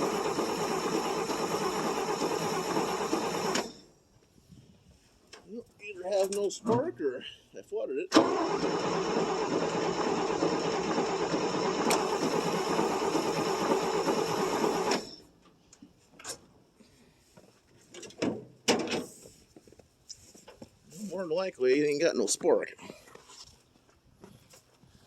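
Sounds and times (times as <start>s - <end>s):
engine cranking on starter: 0.0s - 3.9s, 8.1s - 15.3s.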